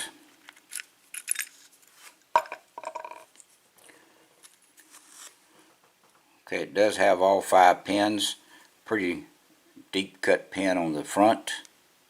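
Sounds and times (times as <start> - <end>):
small metal lock parts clicking: 0.4 - 1.6.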